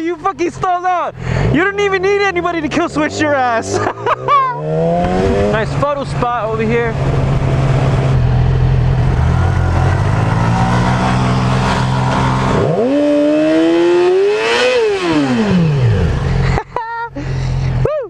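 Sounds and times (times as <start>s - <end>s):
motorcycle engine revving: 0.0s - 16.6s.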